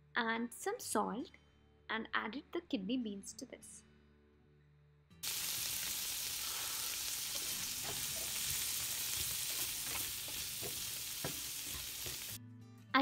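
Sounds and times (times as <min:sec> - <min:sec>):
beans sizzling in hot oil: 0:05.2 - 0:12.4
spatula scraping and knocking pan: 0:07.3 - 0:12.4.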